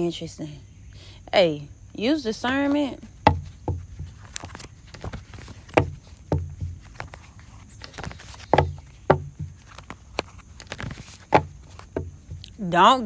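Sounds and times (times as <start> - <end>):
soft knocks and taps: 3.2 - 12.5.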